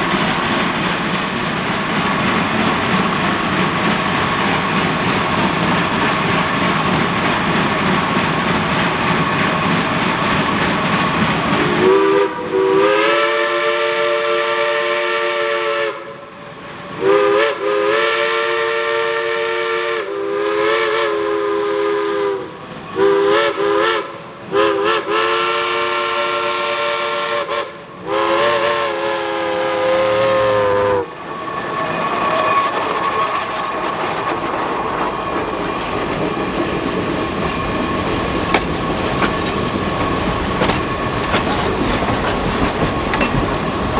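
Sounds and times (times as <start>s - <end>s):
train running and clattering: 0.0s - 43.9s
steam locomotive chime whistle: 11.6s - 33.3s.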